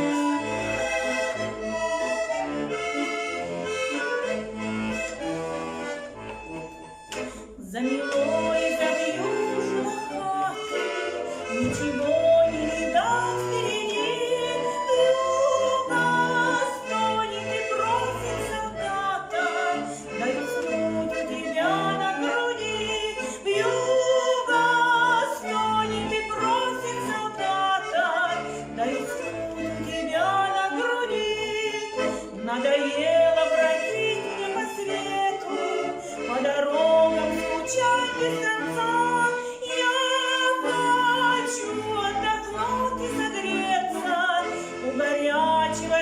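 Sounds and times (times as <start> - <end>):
accordion playing: 0.0 - 46.0.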